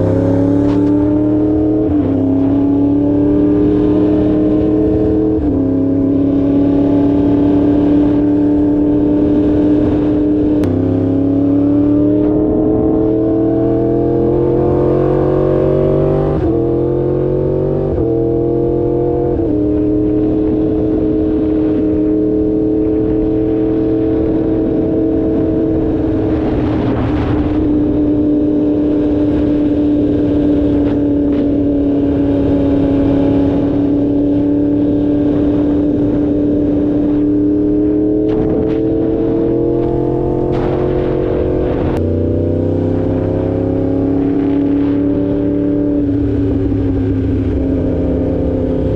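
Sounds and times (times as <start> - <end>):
motorcycle engine accelerating: 0.0 - 48.9
rush of noise: 35.3 - 48.9.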